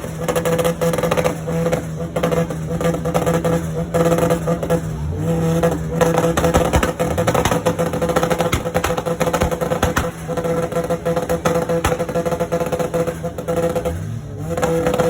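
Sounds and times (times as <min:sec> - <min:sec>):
car engines running loudly: 0:00.0 - 0:15.0.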